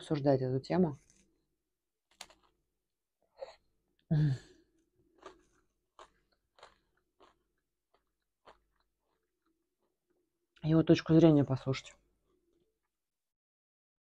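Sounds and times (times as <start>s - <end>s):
faint crunches and mouth sounds: 2.1s - 2.6s, 4.8s - 10.0s
breathy sigh: 3.4s - 4.6s.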